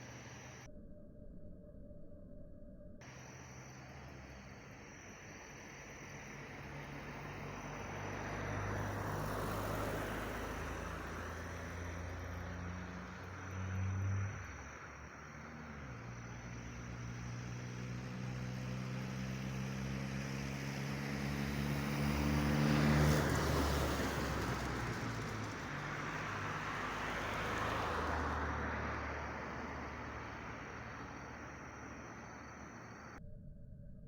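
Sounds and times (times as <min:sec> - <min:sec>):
car driving past: 0:06.0 - 0:33.2.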